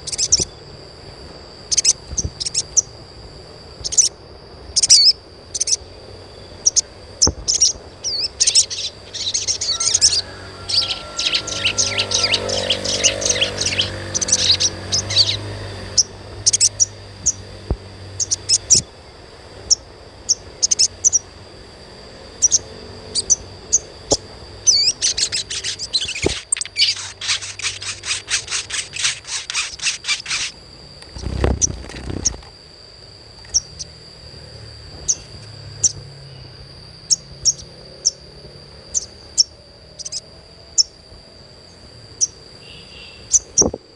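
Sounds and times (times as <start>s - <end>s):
bird twittering: 0.0s - 0.7s, 1.6s - 2.9s, 3.8s - 17.5s, 18.1s - 18.9s, 19.6s - 21.4s, 22.3s - 32.5s, 33.5s - 34.0s, 35.0s - 38.2s, 38.9s - 41.0s, 41.7s - 43.8s
steady high tone: 0.0s - 43.6s
single bird chirps: 1.7s - 2.9s, 6.6s - 17.4s, 22.4s - 32.5s, 41.7s - 43.8s.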